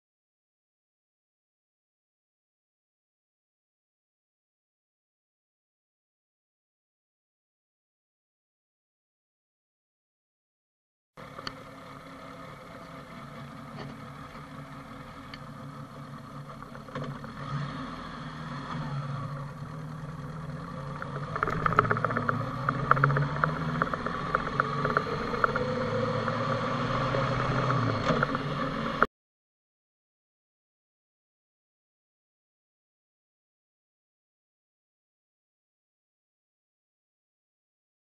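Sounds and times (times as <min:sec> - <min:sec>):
motorcycle engine running: 0:11.2 - 0:29.1
sharp rattling clicks: 0:20.9 - 0:25.8.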